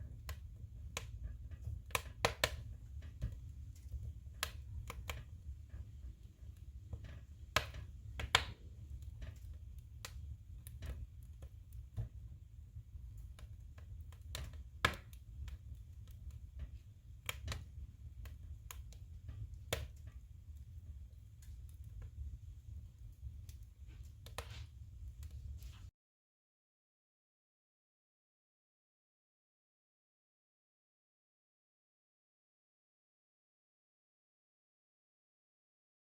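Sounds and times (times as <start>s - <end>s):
firewood crackling and popping: 0.0s - 25.9s
low steady fire rumble: 0.0s - 25.9s.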